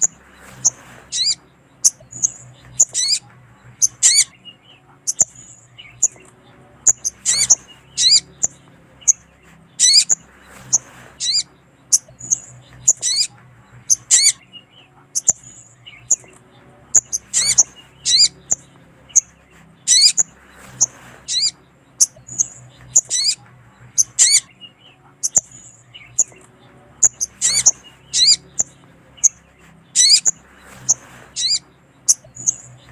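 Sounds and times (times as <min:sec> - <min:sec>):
bird chirps and whistles: 0:17.0 - 0:19.3, 0:19.9 - 0:23.4, 0:27.0 - 0:29.4.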